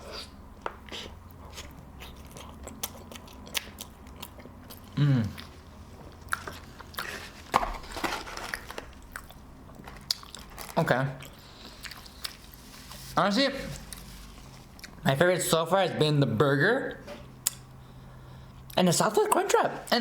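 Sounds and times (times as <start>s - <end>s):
person chewing food: 0.0s - 13.1s, 13.8s - 15.0s.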